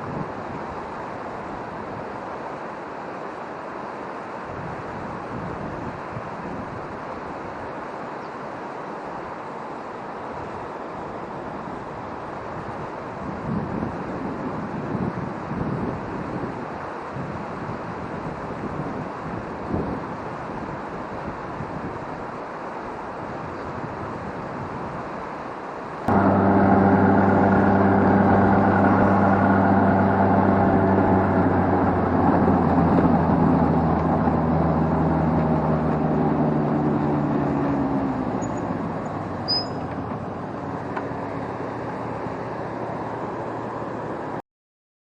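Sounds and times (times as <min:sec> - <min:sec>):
steady rushing noise: 0:25.8 - 0:44.4
vehicle engine droning: 0:26.1 - 0:44.4.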